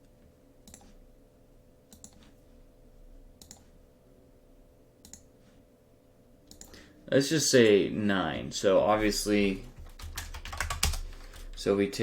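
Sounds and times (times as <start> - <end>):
faint electrical hum: 0.0 - 12.0
computer mouse clicking: 0.6 - 1.0, 1.9 - 2.4, 3.4 - 3.7, 5.0 - 5.3, 6.5 - 6.8.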